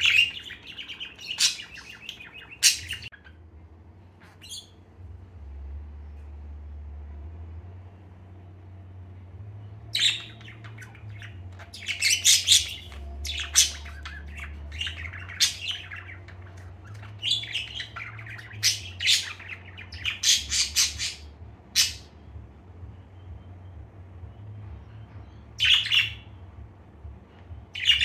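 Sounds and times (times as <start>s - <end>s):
budgerigar chirping: 0.0s - 3.4s, 4.4s - 4.8s, 9.9s - 22.2s
low steady hum: 0.0s - 28.0s.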